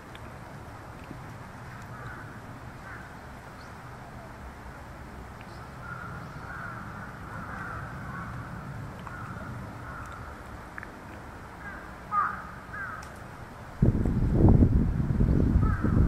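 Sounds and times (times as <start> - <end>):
low background hiss: 0.0 - 15.6
harsh cawing bird calls: 1.6 - 3.2, 5.5 - 10.4, 11.6 - 13.2, 15.6 - 16.0.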